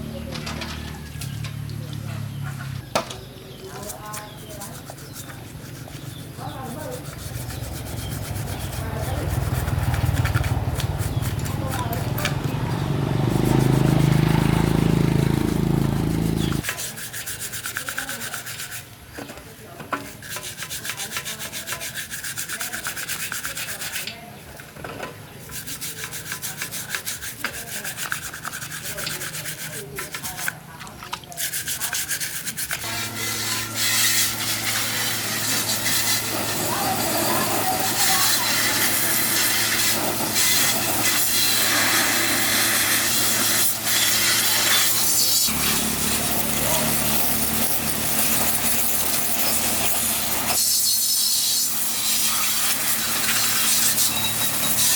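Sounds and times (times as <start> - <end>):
rapid rubbing strokes: 3.7 - 19.0, 20.0 - 24.2, 25.4 - 54.9
low motor hum: 7.1 - 16.6
loud low hum: 7.2 - 16.6.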